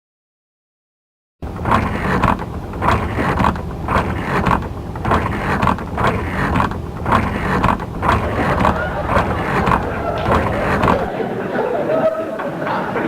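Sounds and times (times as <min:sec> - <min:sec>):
machine ratcheting: 0:01.4 - 0:11.1.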